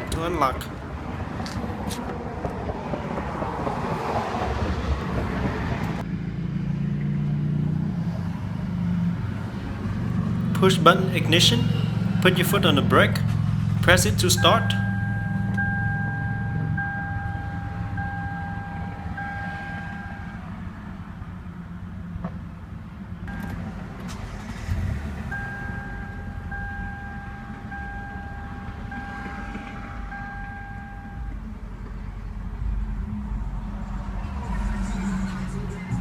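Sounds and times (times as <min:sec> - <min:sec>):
car engine idling: 0:07.6 - 0:17.1.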